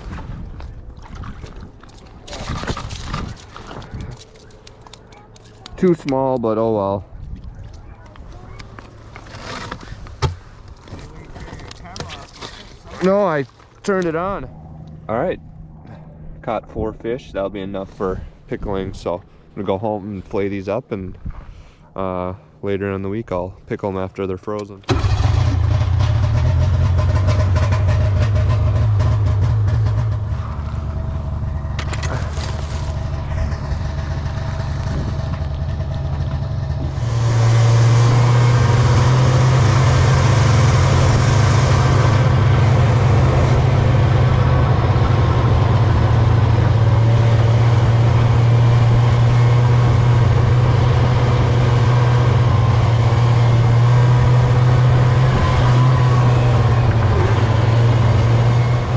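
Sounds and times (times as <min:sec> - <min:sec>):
vehicle engine running: 0:24.9 - 0:58.9.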